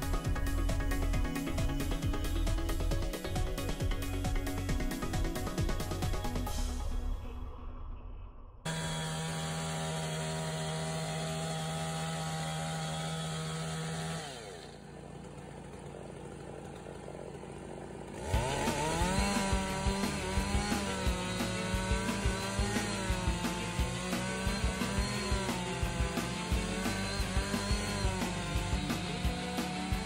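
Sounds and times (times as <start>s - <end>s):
chainsaw sawing wood: 0.0s - 6.6s, 8.7s - 30.0s.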